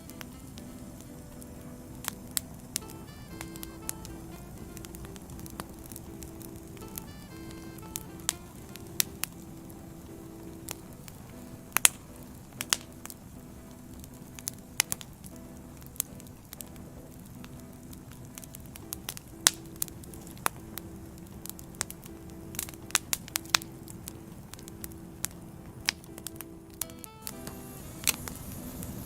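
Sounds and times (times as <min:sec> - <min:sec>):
faint low tones: 0:00.0 - 0:29.0
soft steady hiss: 0:00.0 - 0:29.0
wood fire crackling: 0:00.0 - 0:29.0.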